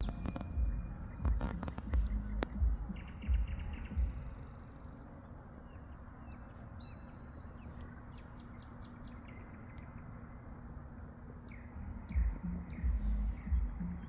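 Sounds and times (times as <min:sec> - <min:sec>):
nightingale singing: 0:00.0 - 0:14.0.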